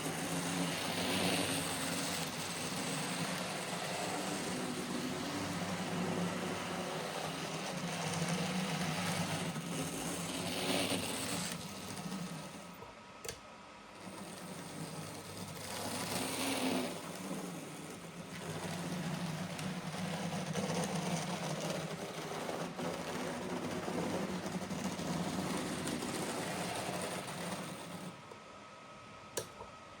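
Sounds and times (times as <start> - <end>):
model train motor whirring: 0.0 - 12.8, 14.0 - 28.2
click: 12.8 - 13.4, 29.3 - 29.7.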